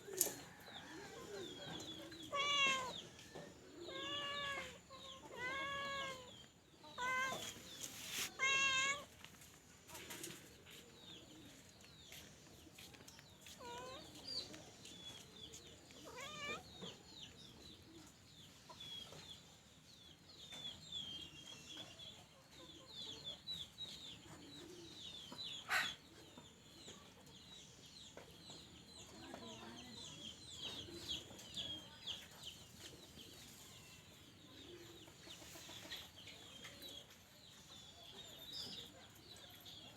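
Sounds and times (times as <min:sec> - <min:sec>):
cat meowing: 0:02.2 - 0:03.0, 0:03.9 - 0:07.6, 0:08.2 - 0:09.1, 0:16.0 - 0:16.7.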